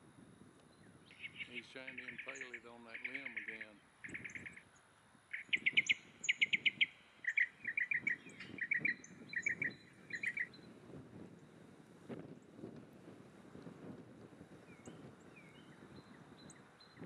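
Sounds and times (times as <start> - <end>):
bird chirping: 0.7 - 10.7, 14.6 - 17.0.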